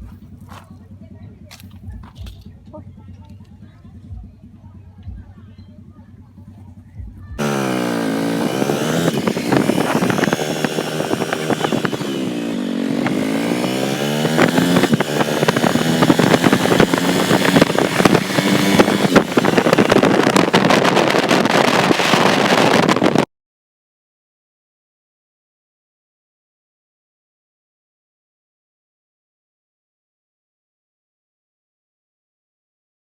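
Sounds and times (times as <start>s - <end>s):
small petrol engine revving: 7.4s - 23.3s.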